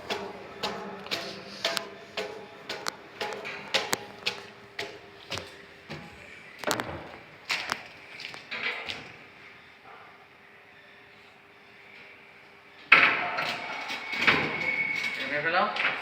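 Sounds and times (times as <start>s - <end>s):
sharp knocks and taps: 0.0s - 6.9s.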